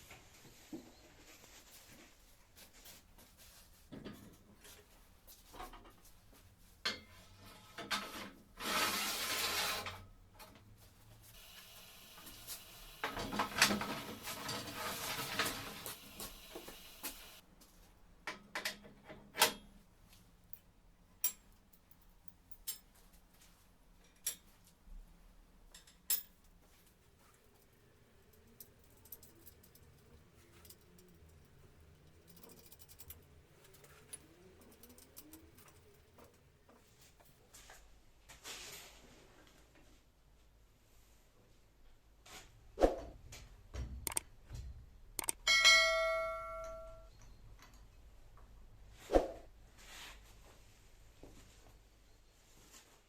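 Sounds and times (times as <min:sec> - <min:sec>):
metal scraping: 0:07.1 - 0:10.5, 0:12.2 - 0:17.4, 0:27.3 - 0:36.5
metal parts clinking: 0:20.5 - 0:22.9, 0:27.3 - 0:36.5.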